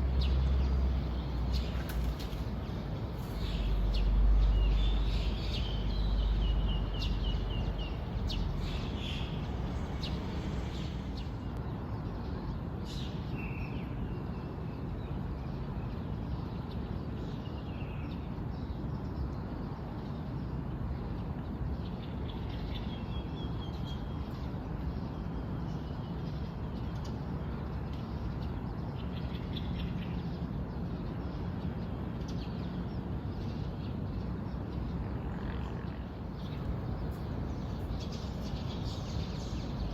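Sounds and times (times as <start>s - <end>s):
birds chirping and trilling: 0.0s - 11.6s, 36.3s - 39.9s
low background rumble: 0.0s - 11.6s, 36.2s - 39.9s.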